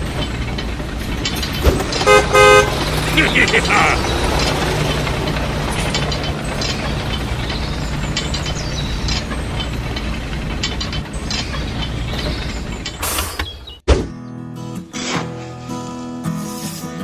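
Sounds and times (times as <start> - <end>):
gears clicking and rattling: 0.0 - 13.5.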